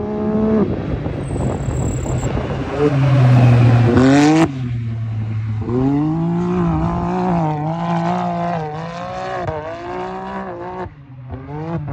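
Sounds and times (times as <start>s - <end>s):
engine revving high: 1.0s - 8.9s.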